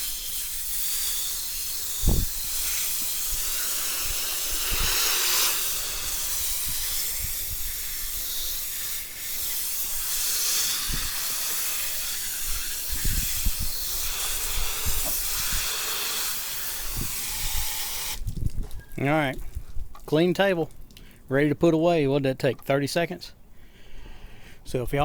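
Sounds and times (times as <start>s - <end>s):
hose spraying water: 0.0s - 18.4s.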